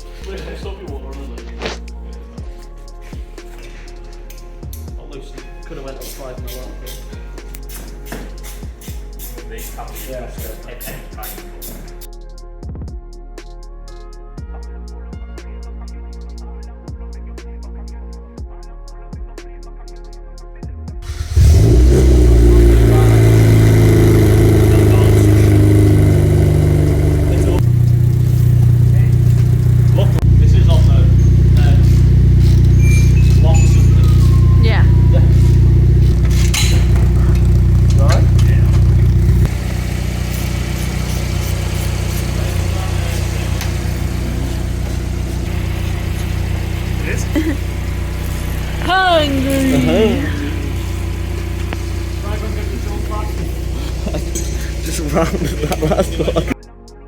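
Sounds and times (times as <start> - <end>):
car engine starting and idling: 21.0 - 56.6.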